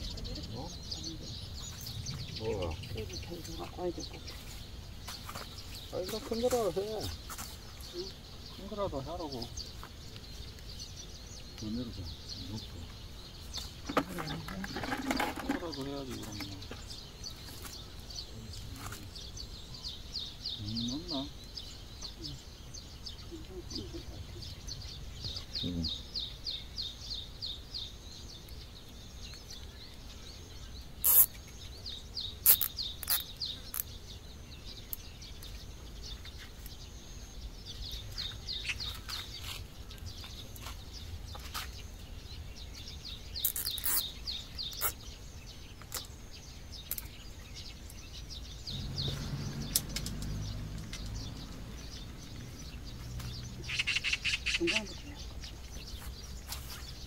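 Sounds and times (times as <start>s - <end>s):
low rumble: 0.0s - 4.9s
songbird chirping: 0.0s - 57.0s.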